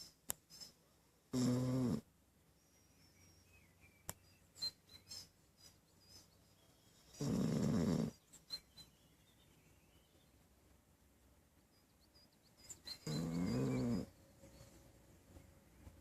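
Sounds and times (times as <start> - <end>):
dog snoring: 1.3 - 2.1, 7.1 - 8.2, 12.9 - 14.1.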